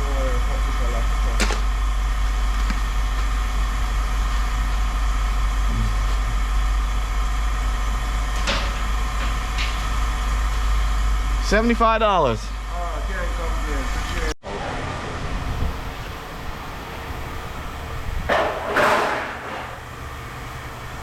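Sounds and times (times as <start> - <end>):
vehicle engine idling: 0.0 - 14.4.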